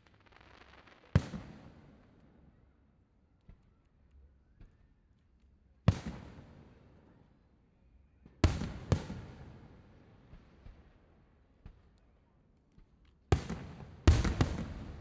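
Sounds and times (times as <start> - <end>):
faint fireworks pops: 0.0 - 2.6, 5.9 - 6.9, 10.2 - 11.0, 11.6 - 15.0
fireworks booming: 14.1 - 15.0.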